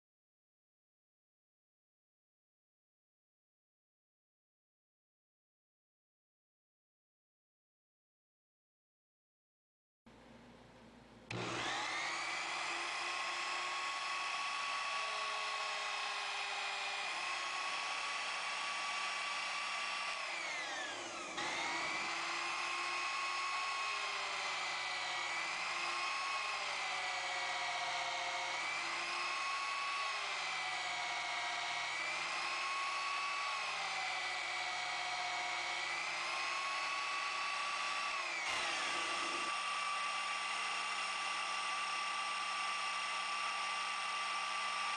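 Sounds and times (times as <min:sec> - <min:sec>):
lathe motor whining: 0:11.3 - 0:44.9.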